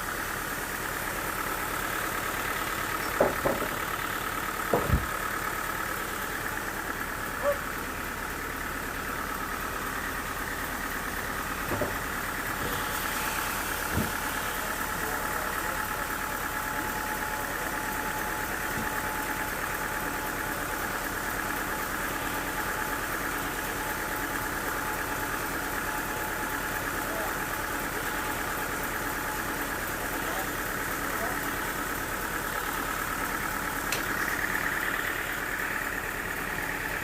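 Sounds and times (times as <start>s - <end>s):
engine-driven machine running: 0.0s - 37.0s
short knocks: 3.0s - 3.8s, 4.7s - 5.2s.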